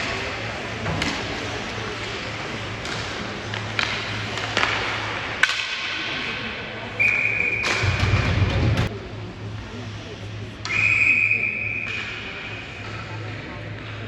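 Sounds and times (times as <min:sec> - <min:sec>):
hockey stick hitting puck: 0:00.0 - 0:06.4, 0:07.5 - 0:08.7
referee's whistle: 0:07.0 - 0:08.0, 0:10.7 - 0:12.0.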